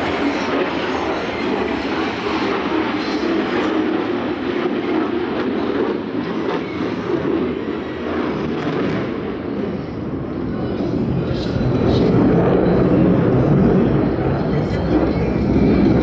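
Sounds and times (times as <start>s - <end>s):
fighter jet engine rumble: 0.0s - 16.0s.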